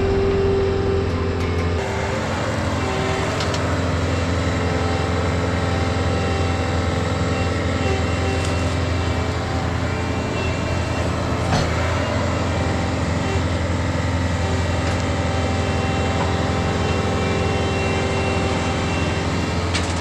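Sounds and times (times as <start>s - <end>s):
sharp knock: 0.0s - 3.6s
tractor engine running: 0.0s - 20.0s.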